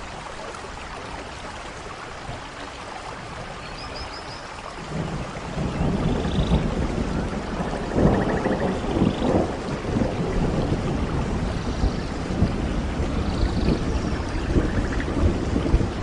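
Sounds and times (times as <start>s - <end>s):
steady rain: 0.0s - 16.0s
thunder rumbling: 4.8s - 16.0s.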